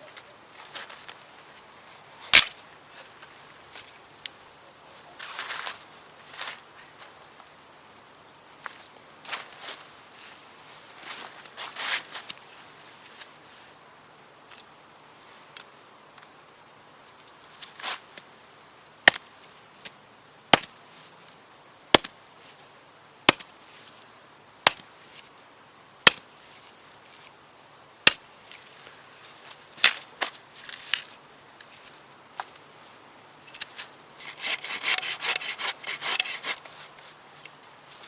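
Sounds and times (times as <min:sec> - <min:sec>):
axe chopping firewood: 0:19.0 - 0:19.3, 0:20.5 - 0:20.7, 0:21.9 - 0:22.2, 0:23.3 - 0:23.5, 0:24.6 - 0:24.9, 0:26.0 - 0:26.3, 0:28.0 - 0:28.3, 0:29.8 - 0:30.3.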